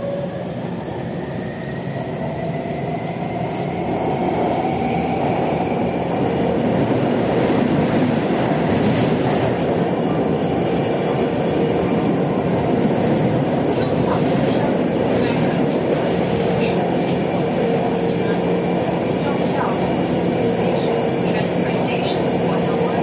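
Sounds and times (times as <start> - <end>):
train rumble inside carriage: 0.0 - 23.0.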